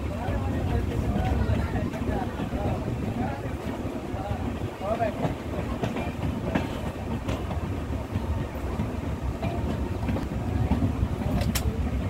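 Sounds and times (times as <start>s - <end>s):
train coach rumbling: 0.0s - 12.0s
sharp clicks: 11.4s - 11.7s.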